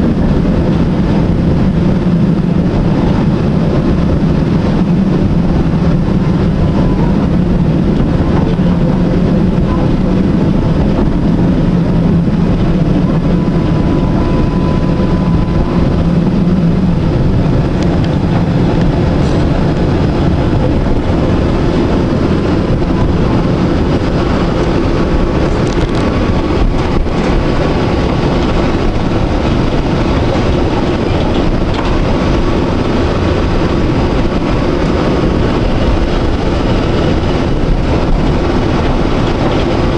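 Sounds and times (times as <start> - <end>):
tram rumbling on rails: 0.0 - 39.9
thin whine: 4.1 - 39.9.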